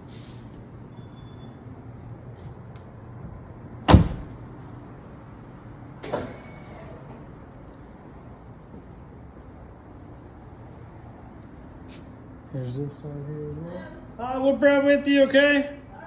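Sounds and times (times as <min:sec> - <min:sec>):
car door shutting: 0:03.9 - 0:04.3.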